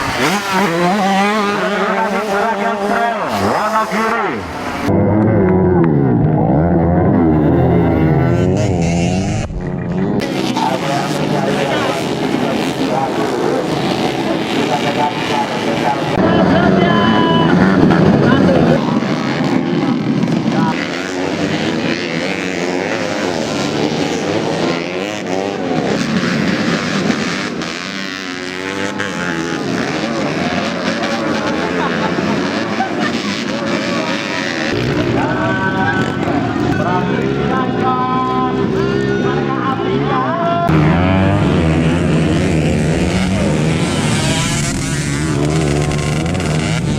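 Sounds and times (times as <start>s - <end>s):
motocross bike engines revving: 0.0s - 46.9s.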